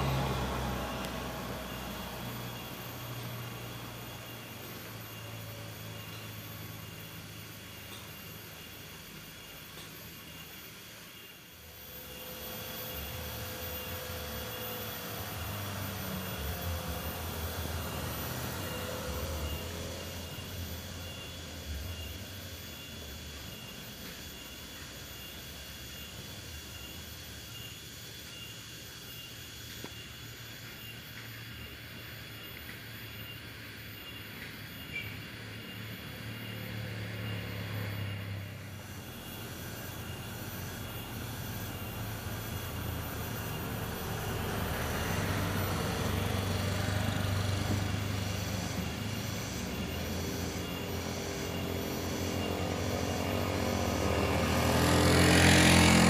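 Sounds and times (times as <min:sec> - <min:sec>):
car driving past: 0:00.0 - 0:06.6, 0:12.0 - 0:22.0, 0:35.3 - 0:56.0
pickup truck engine hum: 0:00.0 - 0:08.3, 0:11.7 - 0:22.9, 0:35.3 - 0:56.0
faint wavering whine: 0:00.0 - 0:56.0.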